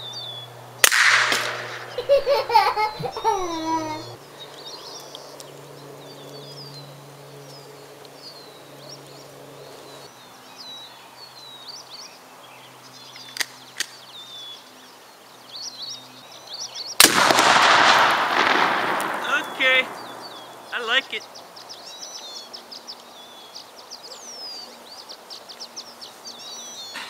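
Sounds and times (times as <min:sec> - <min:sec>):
birds chirping: 0:00.0 - 0:27.0
faint sharp clicks: 0:04.5 - 0:06.4, 0:13.2 - 0:14.0
explosion blast: 0:17.0 - 0:20.6.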